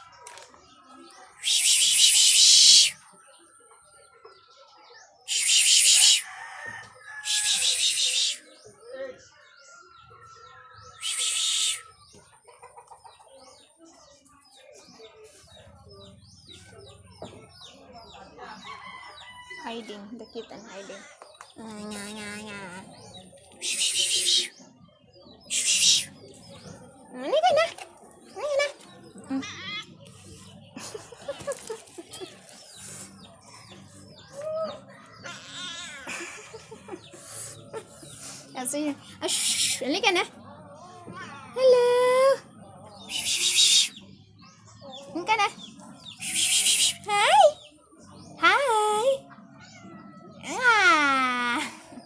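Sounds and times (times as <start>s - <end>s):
small birds chirping: 0.0s - 52.0s
lower arched bird call: 1.4s - 3.0s, 5.3s - 6.3s.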